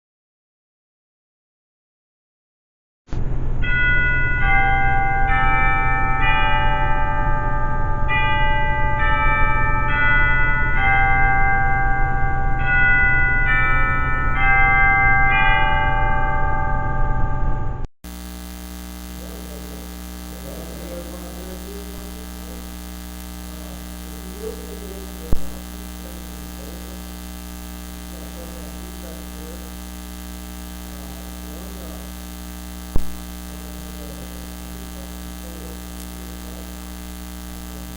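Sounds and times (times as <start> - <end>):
bells playing slow melody: 3.6 - 17.8, 19.2 - 25.4
loud steady low hum: 17.3 - 37.9.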